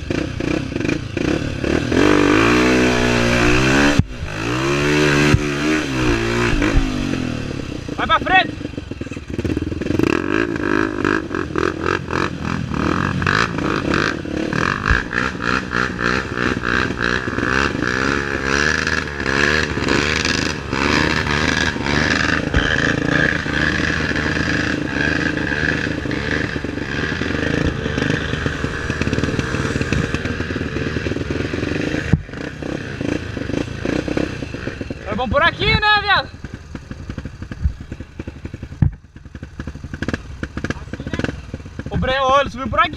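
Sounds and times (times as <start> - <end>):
motorcycle engine revving: 0.0 - 42.9
bike clattering and knocking: 21.5 - 24.6, 36.8 - 42.1.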